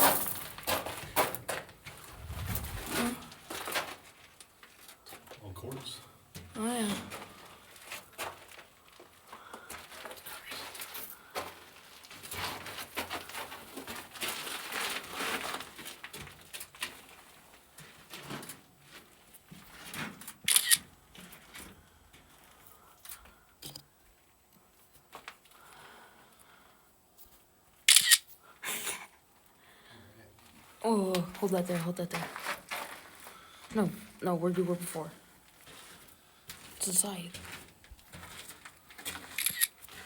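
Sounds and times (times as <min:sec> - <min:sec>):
footsteps crunching on loose rock: 0:00.0 - 0:04.8, 0:31.4 - 0:33.6, 0:35.5 - 0:40.0
clothing and gear rustling: 0:01.8 - 0:04.8, 0:32.1 - 0:33.6.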